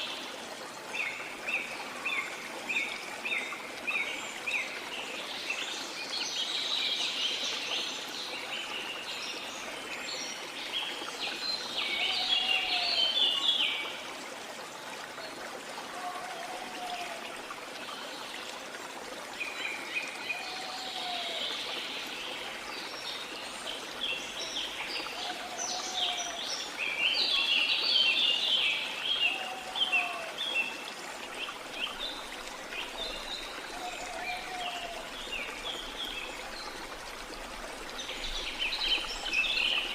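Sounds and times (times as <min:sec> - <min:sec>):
waterfall running: 0:08.2 - 0:39.9.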